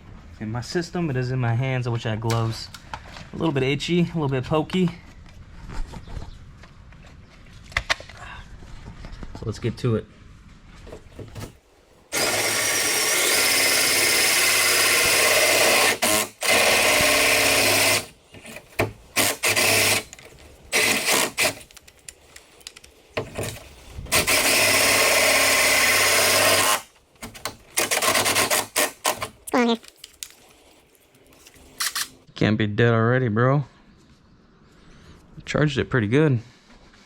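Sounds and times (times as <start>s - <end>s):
cordless drill boring: 12.1s - 18.1s, 19.2s - 21.6s, 24.2s - 26.9s.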